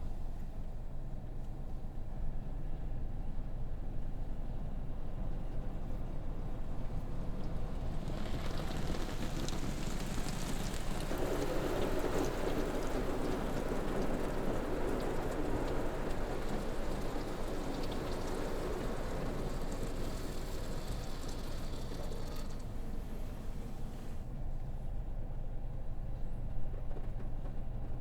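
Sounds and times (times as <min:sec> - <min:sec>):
water spray drumming on car: 0:06.8 - 0:24.3.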